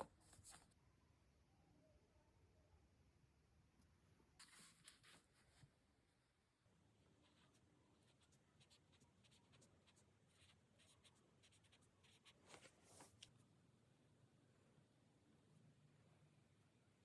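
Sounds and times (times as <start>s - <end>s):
pen scratching on paper: 7.2s - 13.3s.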